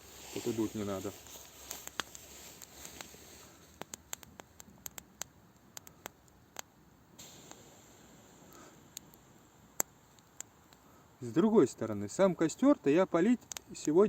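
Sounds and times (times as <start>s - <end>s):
campfire crackling: 0.0s - 14.0s
faint hiss: 0.0s - 14.0s.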